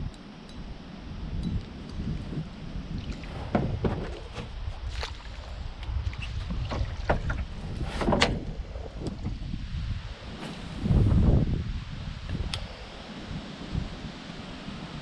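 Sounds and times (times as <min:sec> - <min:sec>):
wind rumbling on microphone: 0:00.0 - 0:15.0
knocks against canoe hull: 0:03.4 - 0:04.6, 0:06.4 - 0:08.4.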